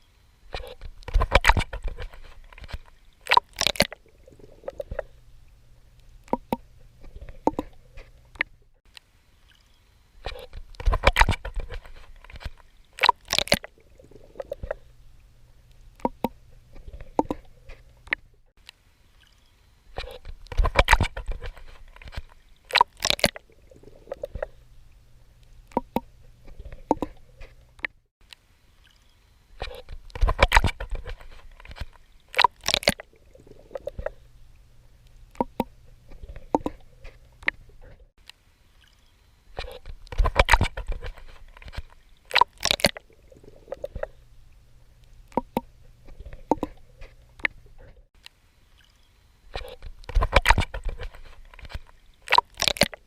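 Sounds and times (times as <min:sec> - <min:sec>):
water splashing from swimming strokes: 0:00.0 - 0:05.3, 0:09.4 - 0:18.2, 0:19.2 - 0:24.7, 0:28.8 - 0:34.6, 0:35.3 - 0:37.9, 0:38.8 - 0:47.9, 0:48.7 - 0:53.0
faint low hum: 0:03.9 - 0:13.0, 0:13.7 - 0:22.7, 0:23.4 - 0:32.3, 0:33.0 - 0:42.3, 0:43.0 - 0:52.3.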